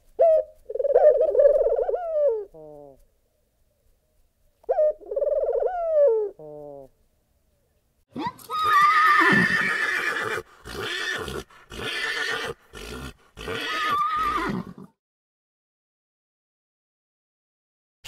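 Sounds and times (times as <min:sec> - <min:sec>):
horse whinnying: 0:08.5 - 0:15.0.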